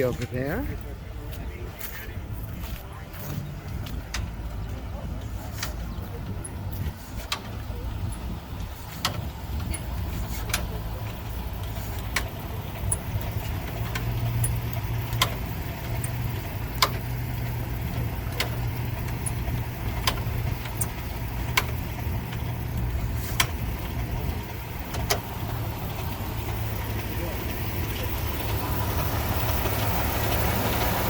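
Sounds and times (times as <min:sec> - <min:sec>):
car engine idling: 0:00.0 - 0:31.0
sharp clicks: 0:05.6 - 0:24.2.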